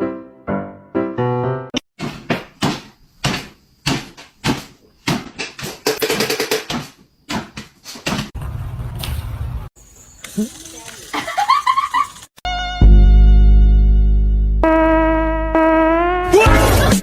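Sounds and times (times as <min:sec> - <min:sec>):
sharp knocks and bangs: 0:02.0 - 0:09.4.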